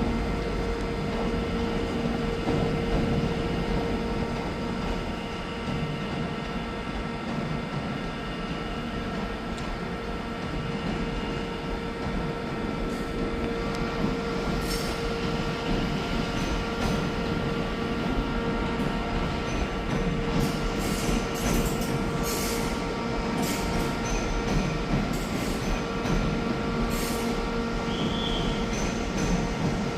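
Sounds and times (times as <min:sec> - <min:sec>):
train running hum: 0:00.0 - 0:29.9.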